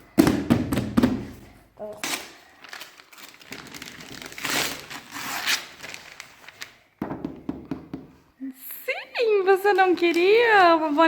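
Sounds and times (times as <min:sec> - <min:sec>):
wrapping paper tearing and crumpling: 0:02.0 - 0:06.8.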